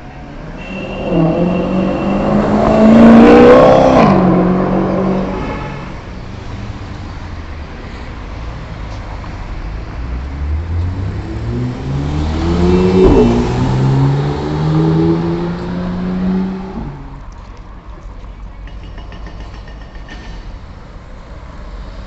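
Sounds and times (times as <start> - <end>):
car engine accelerating: 1.0 - 5.4, 10.0 - 17.1.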